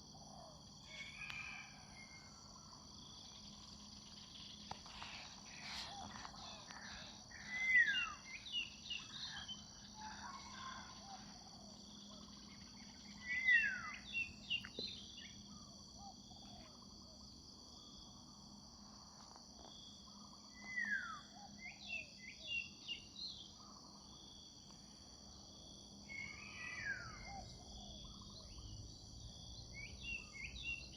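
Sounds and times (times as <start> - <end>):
bird whistle and chirps: 7.4 - 9.4.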